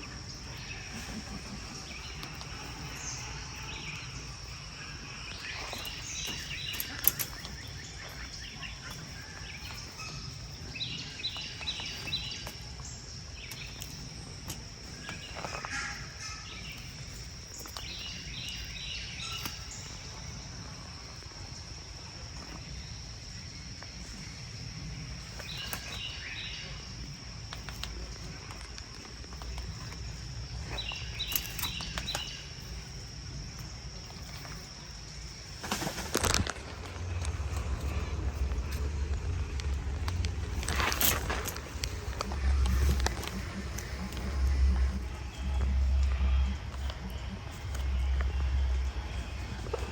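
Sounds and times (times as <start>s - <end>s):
bird chirping: 0.0s - 49.9s
low outdoor rumble: 0.0s - 49.9s
high-pitched hum: 35.7s - 49.9s.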